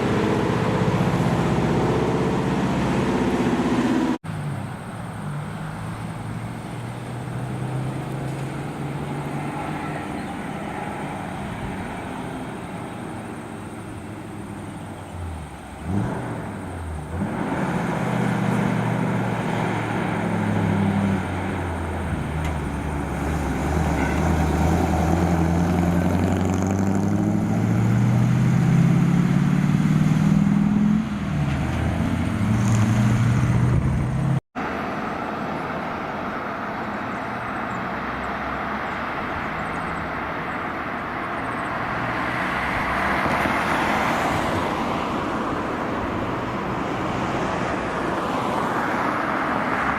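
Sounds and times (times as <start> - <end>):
road and tyre noise of traffic: 0.0 - 49.9
truck diesel engine under load: 0.0 - 49.9.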